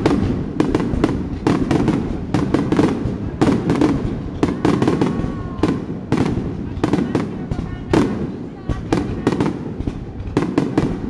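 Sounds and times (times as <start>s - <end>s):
firework shells bursting: 0.0s - 11.0s.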